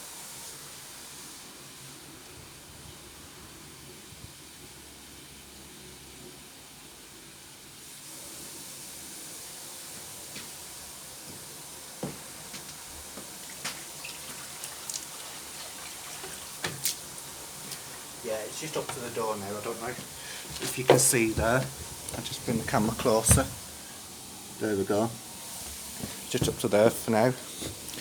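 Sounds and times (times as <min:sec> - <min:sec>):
water running: 0:07.8 - 0:28.0.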